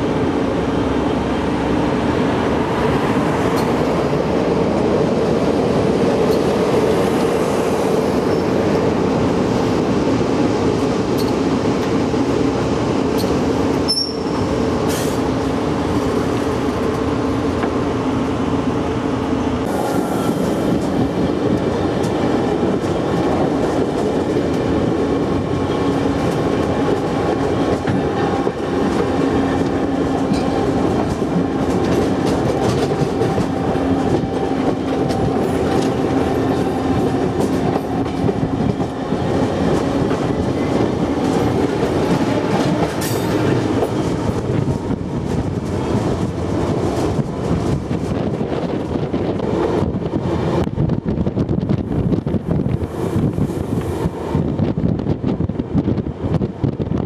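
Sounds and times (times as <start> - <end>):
locomotive drone: 0.0 - 57.0.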